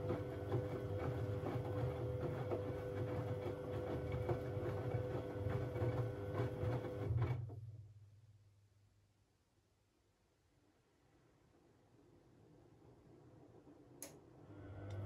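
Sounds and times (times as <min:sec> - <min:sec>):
washing machine drum motor humming: 0:00.0 - 0:07.4.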